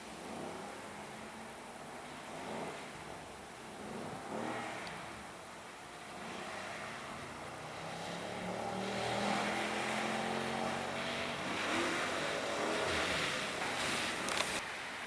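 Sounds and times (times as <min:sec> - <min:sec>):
car engine under throttle: 0:00.0 - 0:14.6
hiss of noise: 0:10.9 - 0:15.0.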